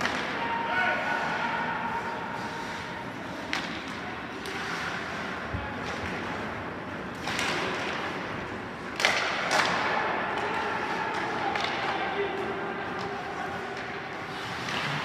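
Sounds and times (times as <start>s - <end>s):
puck hitting rink boards: 3.3s - 5.0s, 7.1s - 15.0s
hockey sticks knocking puck: 3.3s - 5.2s, 7.1s - 15.0s.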